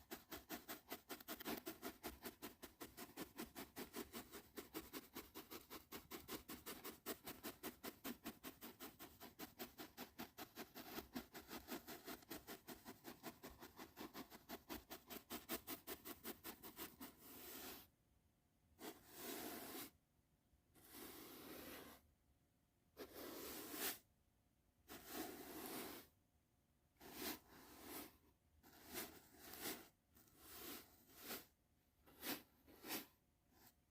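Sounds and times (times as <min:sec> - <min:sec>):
brush bristles stroking: 0:23.1 - 0:24.0, 0:24.9 - 0:26.1, 0:27.0 - 0:31.5.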